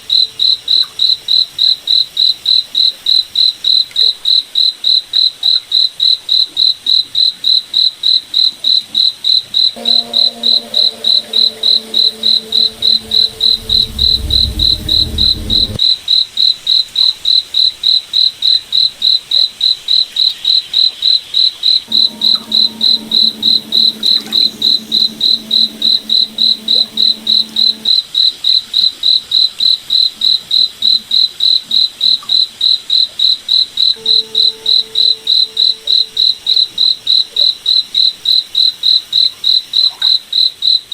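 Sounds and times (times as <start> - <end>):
deep rumble: 9.8 - 15.8, 21.9 - 27.9
low steady hum: 9.8 - 15.8, 21.9 - 27.9
cricket chirping: 21.9 - 28.0.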